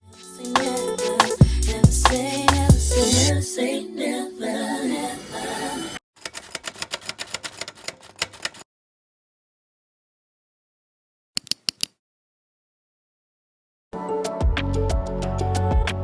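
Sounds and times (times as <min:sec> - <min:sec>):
music: 0:00.0 - 0:06.0, 0:14.0 - 0:16.0.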